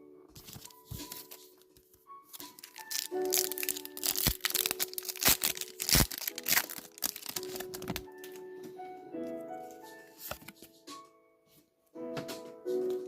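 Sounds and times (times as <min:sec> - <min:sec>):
soft background music: 0:00.0 - 0:13.0
foil wrapper tearing and crinkling: 0:02.3 - 0:08.1.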